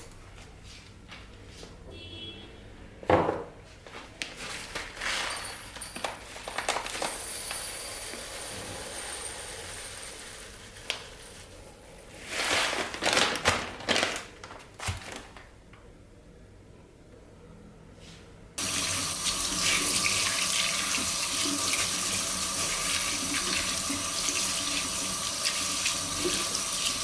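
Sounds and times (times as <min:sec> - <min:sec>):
crinkling and light clatter: 0:03.9 - 0:07.1, 0:12.2 - 0:15.9.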